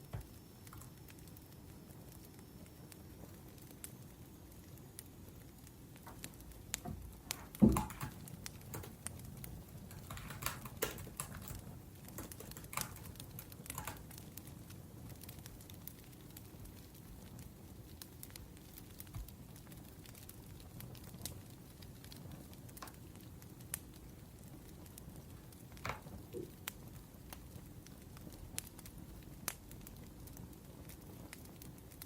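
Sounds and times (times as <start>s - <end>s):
wood fire crackling: 0.0s - 32.0s
typing on laptop keyboard: 7.3s - 14.3s.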